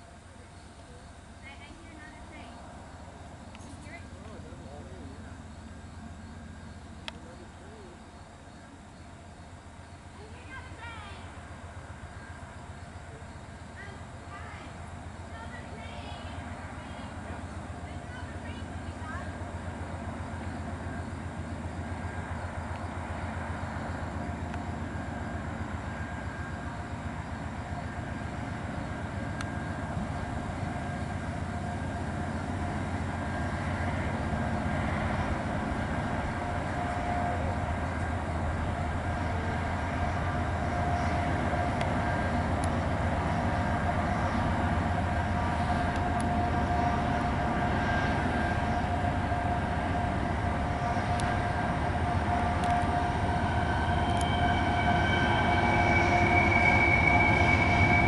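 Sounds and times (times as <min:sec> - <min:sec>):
diesel locomotive engine drone: 0:00.0 - 0:58.0
wheel flange squeal: 0:38.6 - 0:58.0.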